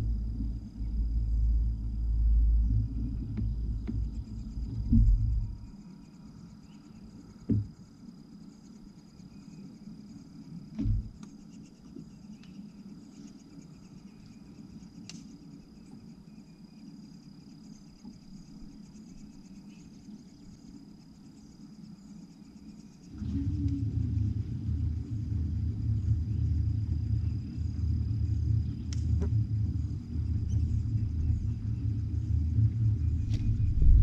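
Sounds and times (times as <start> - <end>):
insects calling: 0.0 - 34.0
low steady hum: 0.0 - 34.0
dull thumps: 7.4 - 7.8, 10.7 - 11.2.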